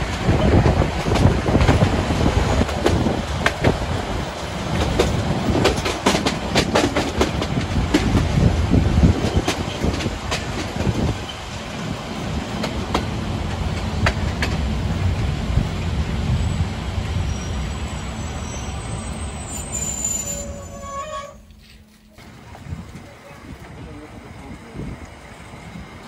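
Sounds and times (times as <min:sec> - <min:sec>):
train rumbling on rails: 0:00.0 - 0:26.0
high wheel squeal: 0:16.4 - 0:21.6.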